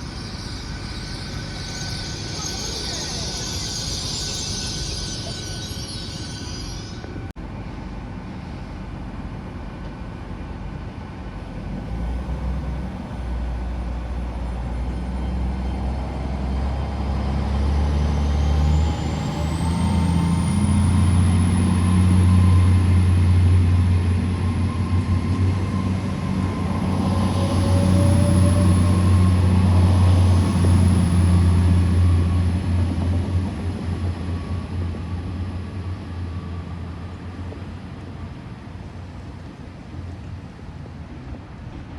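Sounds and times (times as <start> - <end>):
high rising whistle: 0.0 - 7.3, 18.1 - 33.0
diesel locomotive engine drone: 0.0 - 41.9.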